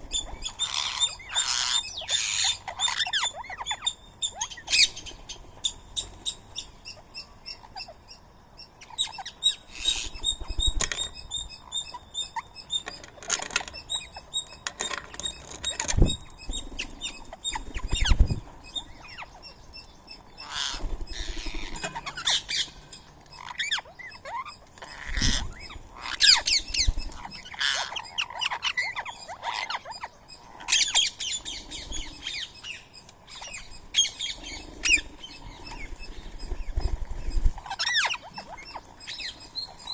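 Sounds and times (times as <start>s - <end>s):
parakeets calling and chirping: 0.0s - 39.9s
wingbeats: 12.8s - 19.3s, 20.4s - 29.0s.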